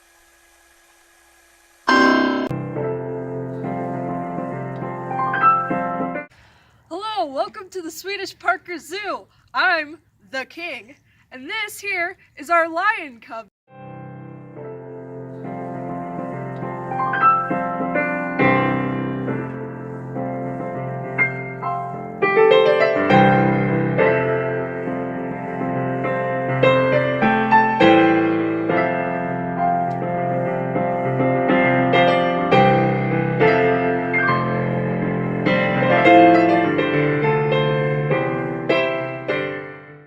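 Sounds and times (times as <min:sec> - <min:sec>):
piano music: 0:01.9 - 0:06.3, 0:13.7 - 0:40.0.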